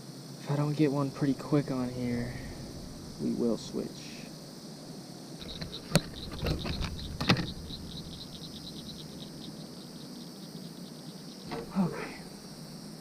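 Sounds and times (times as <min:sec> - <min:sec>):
sharp knocks: 0:01.2 - 0:03.9, 0:05.4 - 0:09.5, 0:11.5 - 0:12.3
frog calling with clicking notes: 0:05.4 - 0:12.4.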